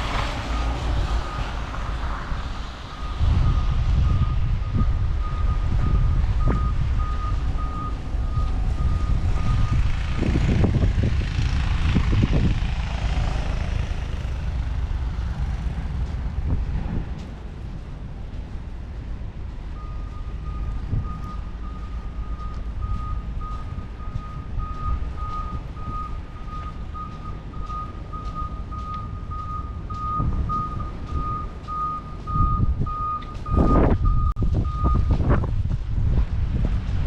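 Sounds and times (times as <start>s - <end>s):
low rumble: 0.0s - 37.0s
reversing alarm beeping: 2.9s - 10.3s, 19.7s - 35.3s.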